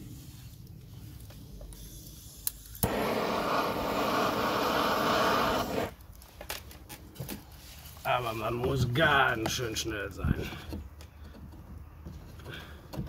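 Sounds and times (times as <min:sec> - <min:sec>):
gas burner rushing hiss: 0:02.4 - 0:06.0.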